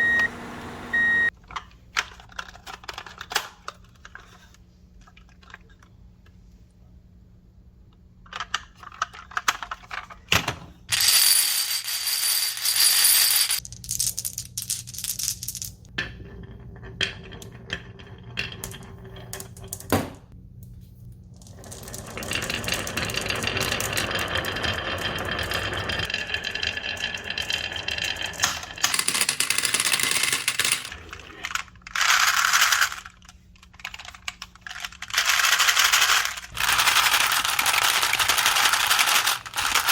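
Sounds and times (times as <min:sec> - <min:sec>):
marbles rolling along a track: 0:21.4 - 0:33.2, 0:34.8 - 0:39.9.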